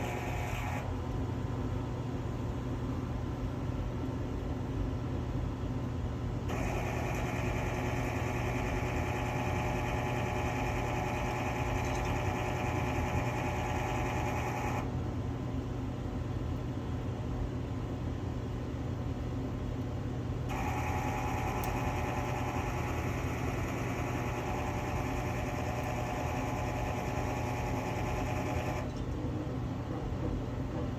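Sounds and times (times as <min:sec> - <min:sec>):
gear motor grinding whine: 0:00.0 - 0:00.9, 0:06.5 - 0:14.9, 0:20.5 - 0:29.0
steady low hum: 0:00.0 - 0:30.9.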